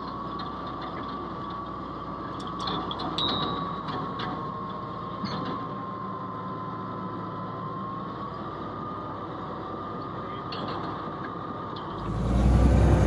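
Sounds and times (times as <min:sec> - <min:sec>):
bulldozer running with whine: 0:00.0 - 0:13.0.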